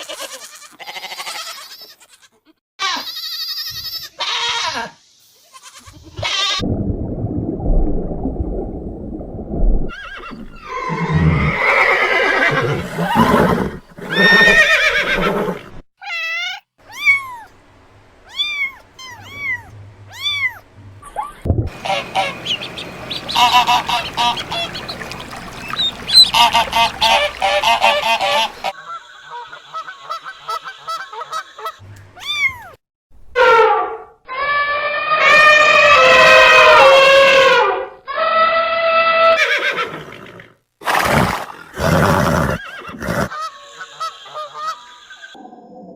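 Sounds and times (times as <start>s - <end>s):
bleating or honking animal calls: 18.3s - 20.6s, 21.7s - 28.8s.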